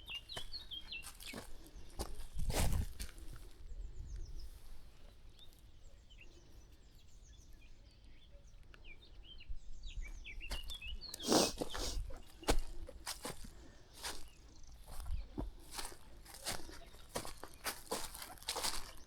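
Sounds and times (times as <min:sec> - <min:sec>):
small birds chirping: 0:00.0 - 0:19.0
rustle through dry vegetation: 0:10.2 - 0:19.0.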